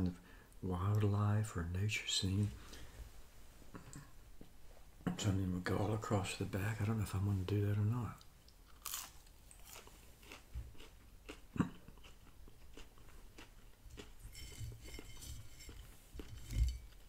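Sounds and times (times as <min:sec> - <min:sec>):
chewing and crunching food: 0:08.2 - 0:17.0.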